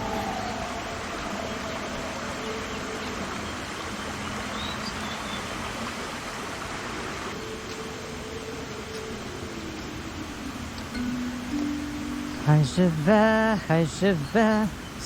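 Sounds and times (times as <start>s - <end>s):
faint high chirp: 0.0s - 5.5s, 10.9s - 15.0s
rushing forest ambience: 0.0s - 15.0s.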